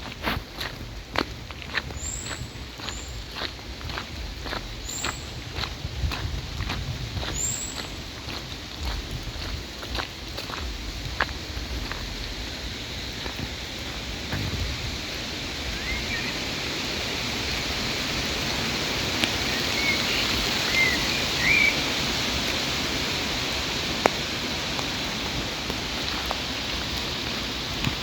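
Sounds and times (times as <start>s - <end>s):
rain falling: 0.0s - 28.0s
bird chirps: 15.7s - 16.4s, 19.5s - 21.8s.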